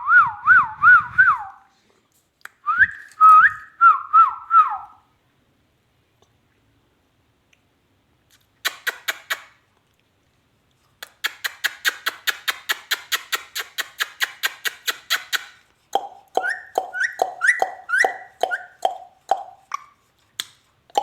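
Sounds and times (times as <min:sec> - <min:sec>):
parrot calling: 0:11.3 - 0:20.0.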